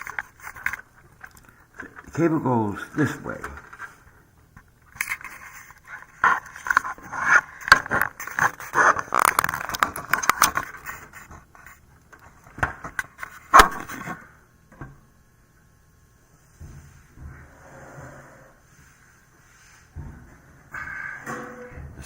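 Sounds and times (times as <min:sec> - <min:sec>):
plastic connector scraping and clicking: 0:00.0 - 0:01.9, 0:04.9 - 0:14.1.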